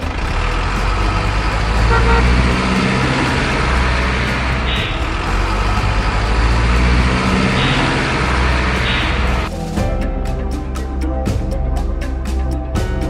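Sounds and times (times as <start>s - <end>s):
truck engine running: 0.0s - 9.7s.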